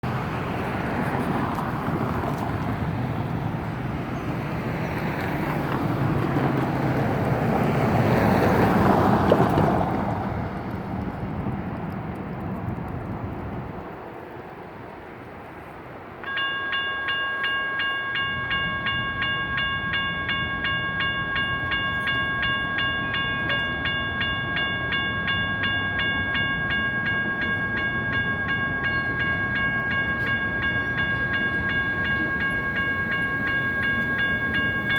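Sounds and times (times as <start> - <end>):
vehicle passing: 0.0 - 11.5
electronic crossing bell ringing: 16.2 - 34.9.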